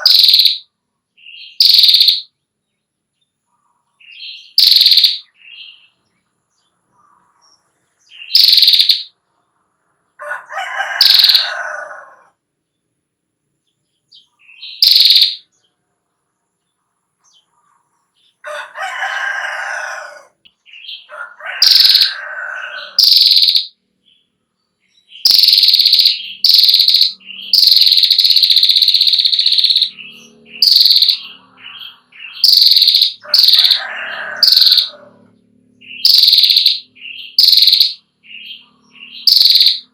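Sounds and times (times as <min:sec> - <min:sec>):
bird drawn-out low calls: 0:00.0 - 0:00.6, 0:25.2 - 0:39.9
bird high trilling call: 0:00.0 - 0:02.3, 0:04.0 - 0:06.0, 0:08.1 - 0:09.2, 0:10.9 - 0:11.8, 0:14.1 - 0:15.5, 0:20.7 - 0:23.8, 0:25.1 - 0:35.2, 0:35.8 - 0:39.9.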